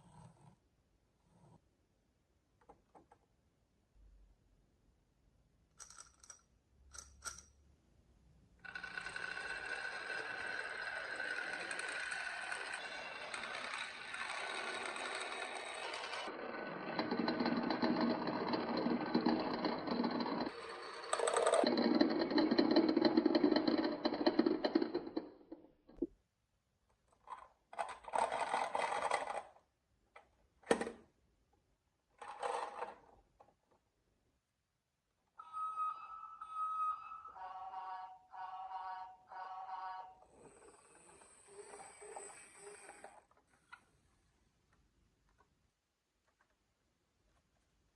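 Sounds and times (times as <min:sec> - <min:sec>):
marbles rolling down wooden run: 0:08.6 - 0:25.4.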